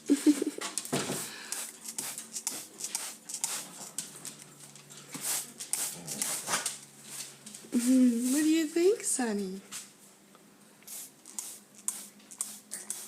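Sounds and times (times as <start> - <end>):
spray bottle squirts: 10.9 - 13.0.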